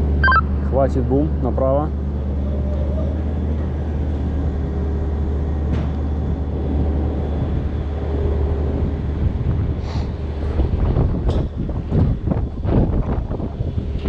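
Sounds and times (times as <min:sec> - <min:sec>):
crane engine droning: 0:00.0 - 0:14.0
wind on microphone: 0:08.6 - 0:14.0.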